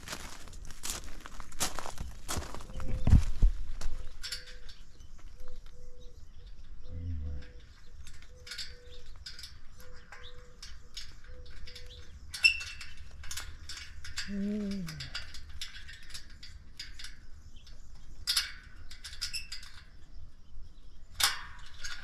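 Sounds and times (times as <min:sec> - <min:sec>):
birds chirping: 0:01.8 - 0:18.9.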